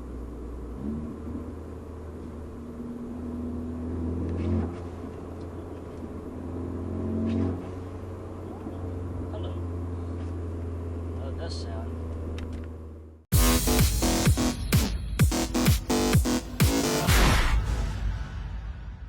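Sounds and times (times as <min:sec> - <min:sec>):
car engine pulling under load: 0:00.0 - 0:13.2.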